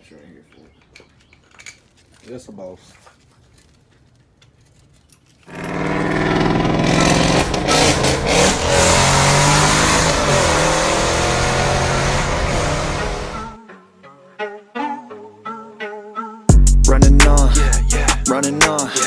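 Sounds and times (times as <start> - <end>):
vehicle engine running loudly: 5.5 - 13.6.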